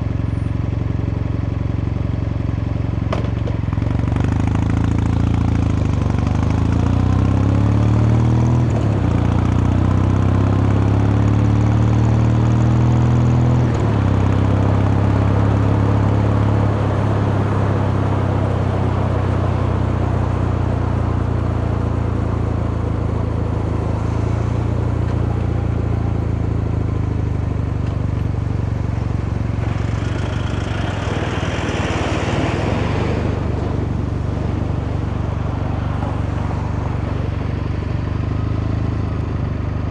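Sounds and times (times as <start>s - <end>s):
motorcycle engine accelerating: 3.1s - 39.9s
rushing hiss: 23.8s - 25.9s.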